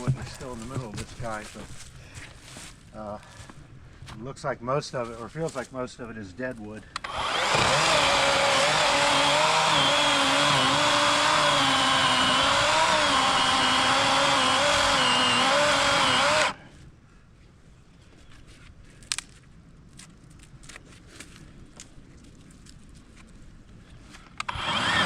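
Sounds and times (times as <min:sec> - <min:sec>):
electric chainsaw cutting log: 0:07.0 - 0:16.6, 0:24.4 - 0:25.0.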